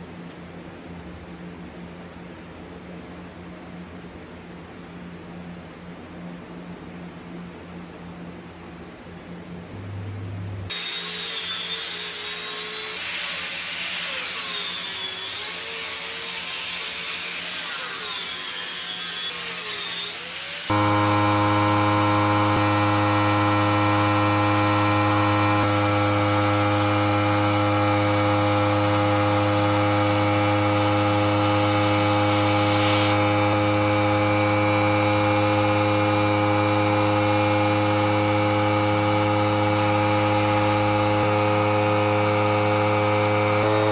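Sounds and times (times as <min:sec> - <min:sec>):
steady motor hum: 0:00.0 - 0:43.9
power tool working wood: 0:10.7 - 0:43.9.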